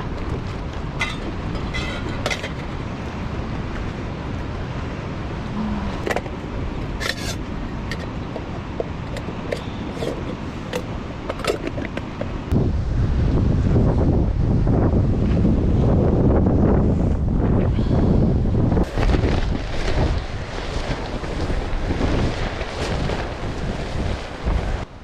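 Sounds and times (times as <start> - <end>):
low rumble of strong wind: 0.0 - 25.0.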